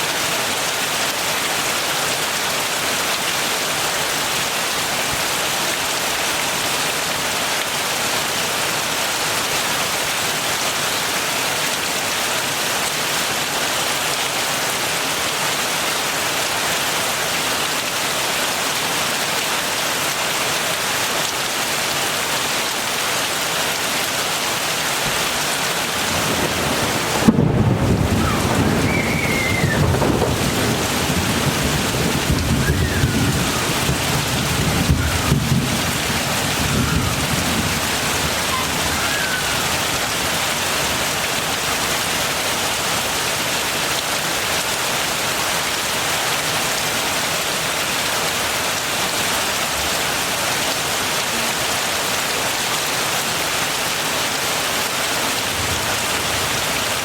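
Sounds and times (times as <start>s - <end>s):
heavy rain falling: 0.0s - 57.0s
thunder rumble and clap: 25.9s - 38.9s.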